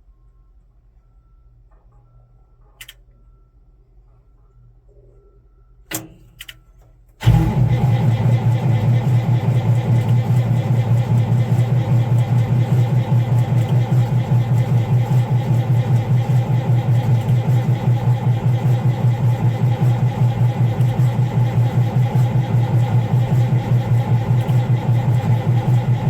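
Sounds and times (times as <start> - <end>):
starter motor cranking diesel engine: 7.2 - 26.0.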